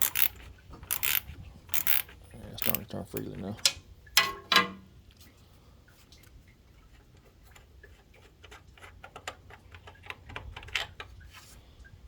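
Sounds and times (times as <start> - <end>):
ratchet wrench clicking: 0.0 - 3.3.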